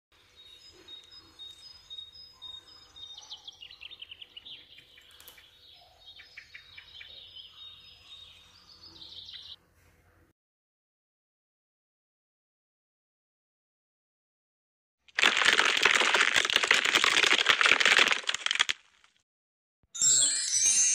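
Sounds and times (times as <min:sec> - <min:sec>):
small birds chirping and trilling: 0:00.2 - 0:09.6.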